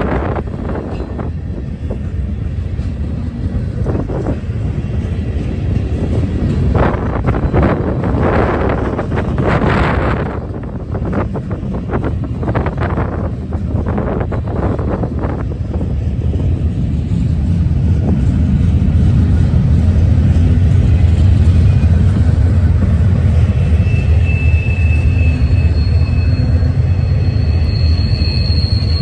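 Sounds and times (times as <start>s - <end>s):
freight train wheels rumbling: 0.0s - 29.0s
high thin wheel squeal: 23.4s - 29.0s.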